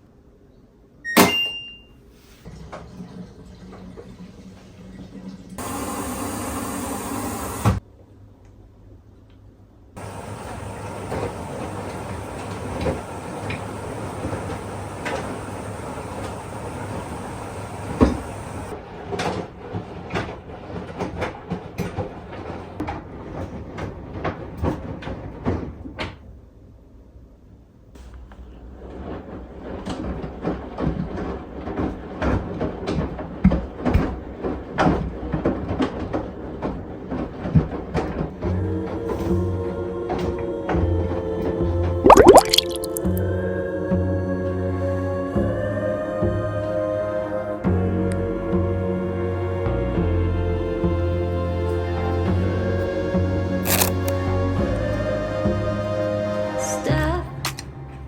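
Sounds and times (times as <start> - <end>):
washing machine humming: 5.6 - 7.8, 10.0 - 18.7.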